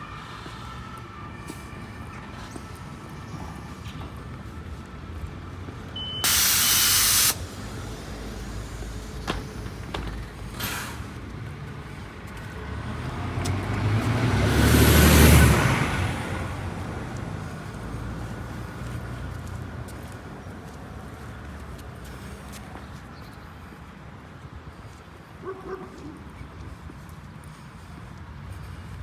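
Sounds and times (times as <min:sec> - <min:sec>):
short beep: 0:06.0 - 0:07.3
loud hiss of air: 0:06.2 - 0:09.9, 0:10.5 - 0:11.2
road vehicle driving past: 0:07.3 - 0:21.9.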